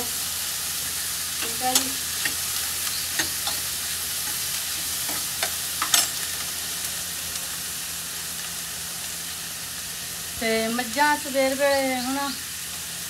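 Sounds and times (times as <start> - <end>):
onions sizzling in oil: 0.0 - 13.0
metal spoon clinking on pan: 3.2 - 3.6, 5.1 - 6.2.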